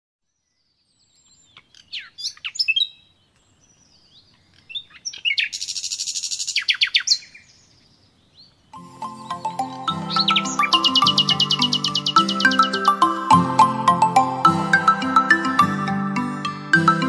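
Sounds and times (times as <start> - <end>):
songbirds chirping and singing: 0.2 - 17.0
buzzy bird trill: 8.7 - 17.0.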